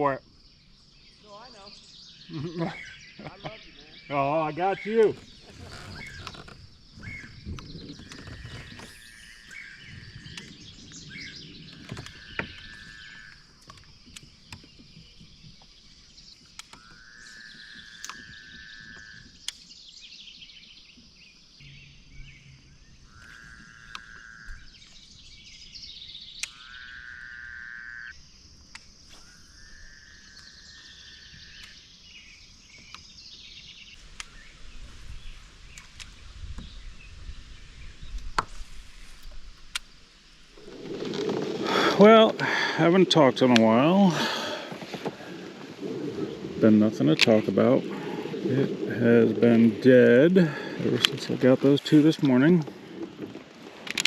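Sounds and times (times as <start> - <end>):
sharp clicks: 17.9 - 18.3
steady high hiss: 33.9 - 45.8.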